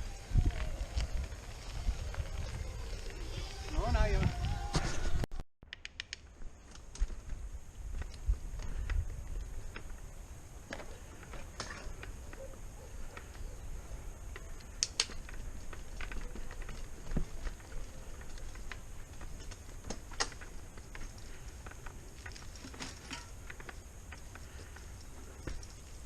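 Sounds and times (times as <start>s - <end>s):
bike clicks knocks and rattles: 14.3s - 26.0s.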